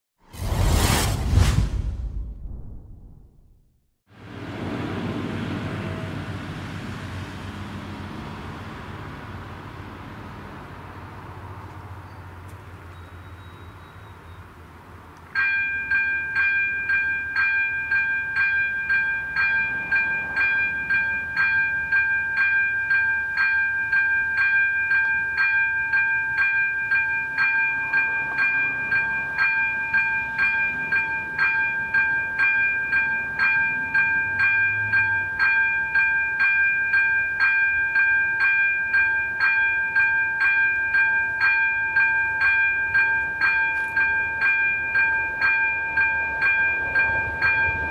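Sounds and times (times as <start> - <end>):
level crossing warning bell: 15.3 - 47.9.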